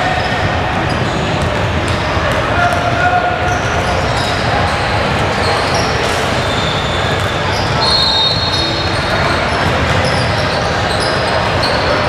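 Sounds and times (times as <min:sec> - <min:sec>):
crowd chatter: 0:00.0 - 0:12.0
basketball bouncing on court: 0:00.2 - 0:04.3.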